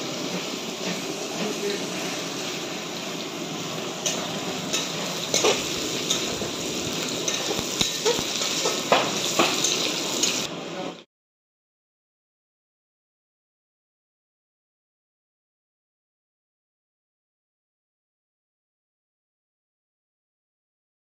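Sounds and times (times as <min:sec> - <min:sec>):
onions sizzling in oil: 0:00.0 - 0:10.8
metal spatula scraping pan: 0:04.0 - 0:06.6.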